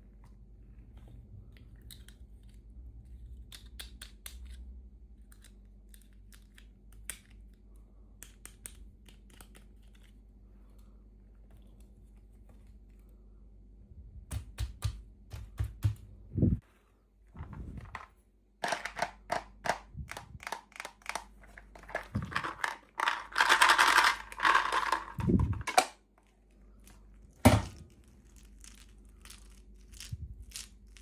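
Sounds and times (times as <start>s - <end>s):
toy packaging crinkling: 20.4s - 31.0s.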